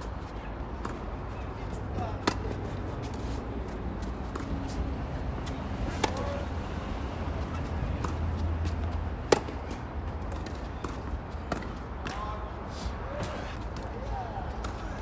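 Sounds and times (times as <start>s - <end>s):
tennis ball hit by rackets: 1.9s - 3.4s, 5.4s - 6.4s, 7.6s - 12.3s.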